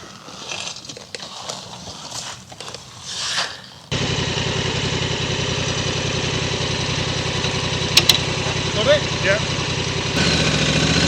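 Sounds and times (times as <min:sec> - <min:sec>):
scuffs and clicks: 0:00.0 - 0:03.9
motorcycle engine idling: 0:03.9 - 0:11.0.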